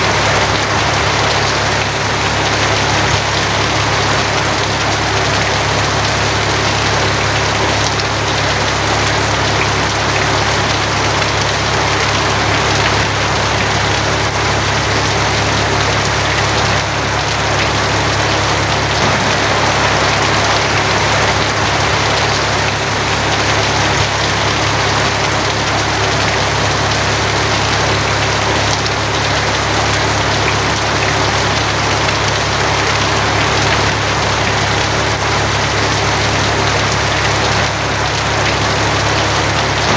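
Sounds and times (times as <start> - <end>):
heavy rain on a tin roof: 0.0 - 39.9
low rumble: 18.2 - 23.7.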